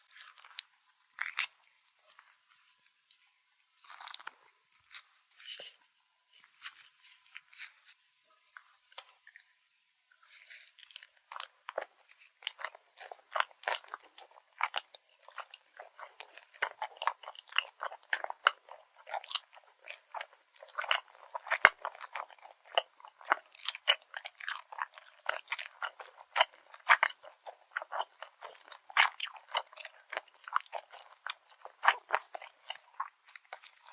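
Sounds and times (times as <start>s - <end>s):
crunchy sticky chewing: 0.0s - 8.0s, 10.2s - 33.9s
bites: 10.9s - 33.9s.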